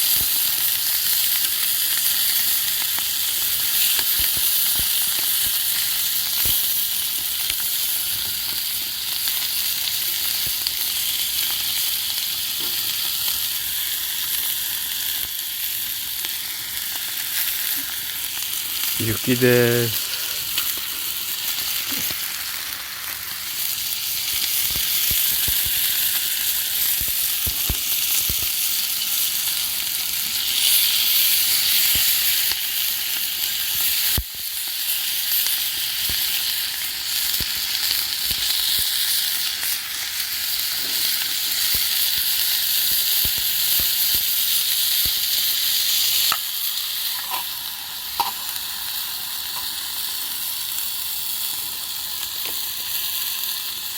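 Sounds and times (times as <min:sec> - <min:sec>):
food sizzling in a pan: 0:00.0 - 0:53.9
pops and crackles: 0:24.3 - 0:26.3, 0:26.9 - 0:28.6.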